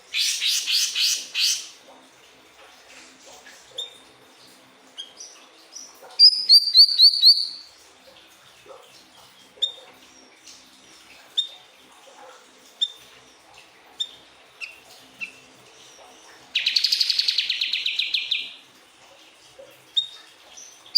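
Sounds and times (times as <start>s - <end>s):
bird chirping: 0.1s - 1.7s, 5.0s - 7.6s, 16.6s - 18.5s
bird fast trill: 6.2s - 7.6s.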